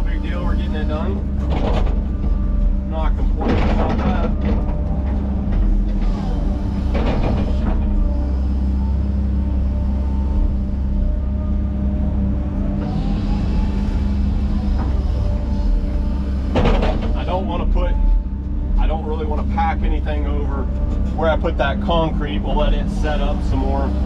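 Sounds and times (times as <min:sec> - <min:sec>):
diesel engine droning: 0:00.0 - 0:24.0.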